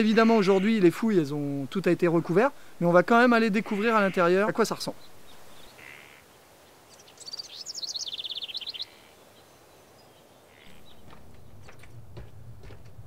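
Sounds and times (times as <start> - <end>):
outdoor background hiss: 0.0 - 13.0
songbird trill: 3.7 - 12.4.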